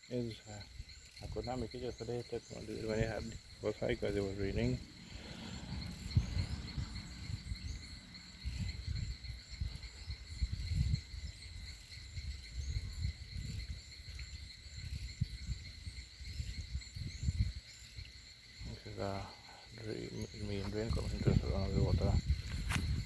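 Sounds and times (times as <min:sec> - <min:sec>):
insects trilling: 0:00.0 - 0:23.0
low rumble on microphone: 0:00.6 - 0:14.0, 0:20.2 - 0:23.0.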